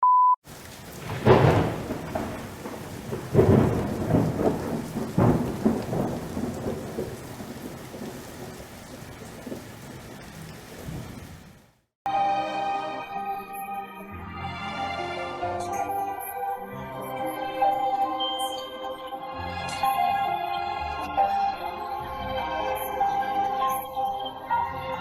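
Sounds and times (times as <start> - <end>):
rain falling: 0.4 - 11.9, 21.1 - 24.9
thunder claps and rolls: 0.5 - 11.7
music: 12.1 - 25.0.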